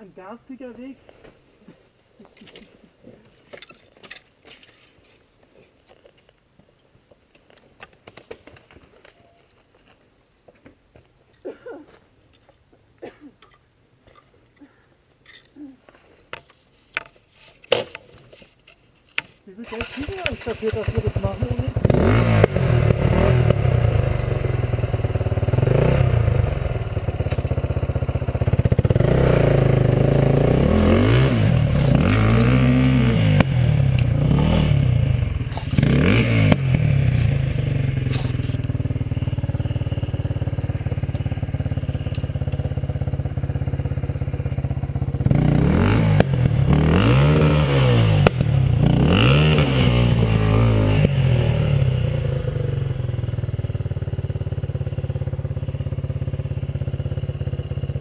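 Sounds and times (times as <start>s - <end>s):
dirt bike engine: 19.6s - 58.0s.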